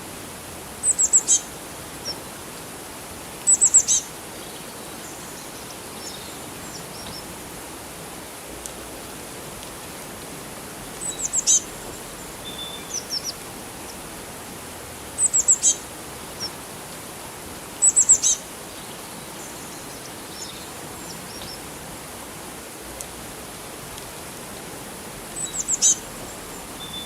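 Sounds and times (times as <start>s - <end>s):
running water hiss: 0.0s - 27.0s
bird chirping: 0.8s - 1.4s, 3.5s - 7.2s, 11.0s - 11.7s, 12.4s - 13.4s, 15.2s - 15.8s, 17.8s - 21.6s, 25.4s - 27.0s.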